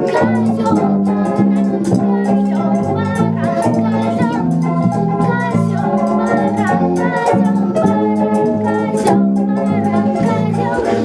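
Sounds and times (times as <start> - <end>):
organ-like keyboard music: 0.0 - 11.0.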